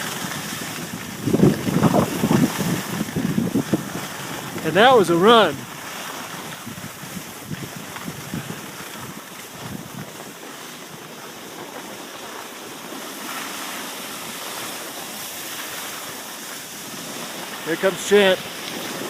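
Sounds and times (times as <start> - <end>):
skis hissing over snow: 0.0 - 19.0
wind noise on microphone: 0.0 - 19.0.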